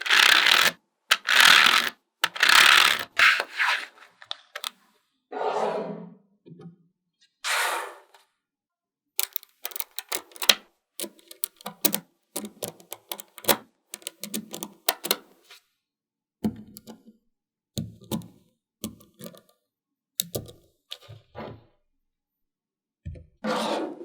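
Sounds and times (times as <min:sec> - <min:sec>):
magnetic balls clicking together: 0:00.0 - 0:03.2, 0:09.2 - 0:15.2.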